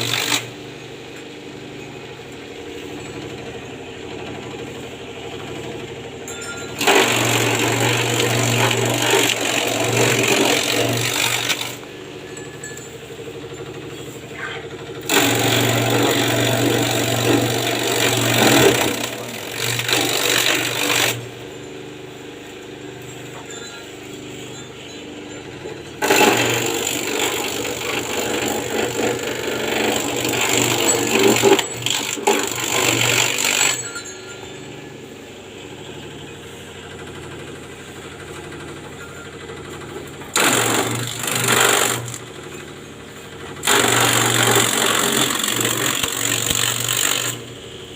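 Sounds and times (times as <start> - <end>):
grass chopper engine running: 0.0 - 47.9
grass being chopped: 6.8 - 11.8, 15.0 - 21.2, 26.0 - 34.1, 40.3 - 42.2, 43.6 - 47.4.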